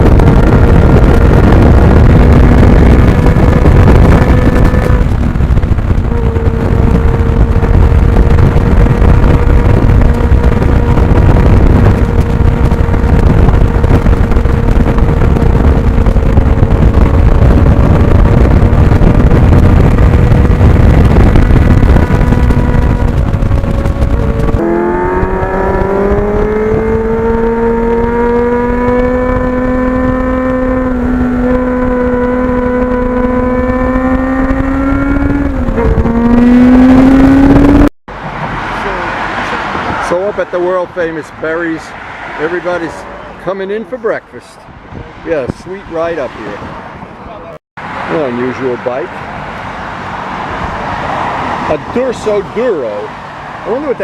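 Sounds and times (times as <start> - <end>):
motorcycle engine accelerating: 0.0 - 38.0
wind rush: 0.0 - 43.4, 44.6 - 54.0.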